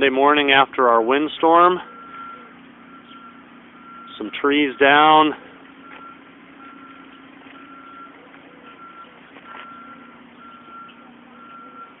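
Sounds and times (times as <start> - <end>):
engine hum: 0.0 - 12.0
backup alarm beeping: 1.6 - 12.0.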